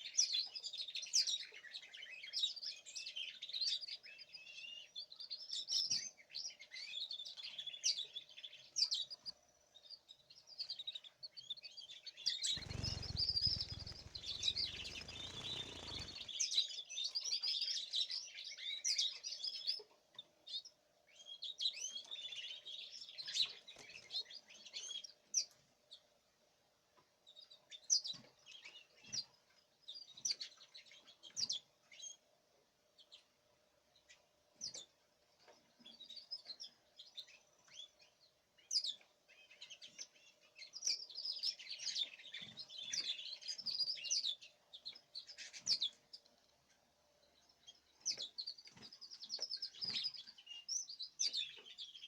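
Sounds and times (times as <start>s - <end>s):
songbirds chirping: 0.0s - 52.0s
faint steady hum: 12.6s - 16.4s.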